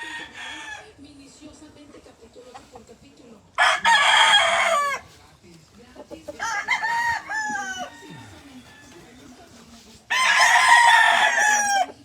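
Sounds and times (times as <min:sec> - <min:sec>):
roosters crowing: 0:00.0 - 0:01.0, 0:03.6 - 0:05.2, 0:06.1 - 0:09.5, 0:10.1 - 0:12.0.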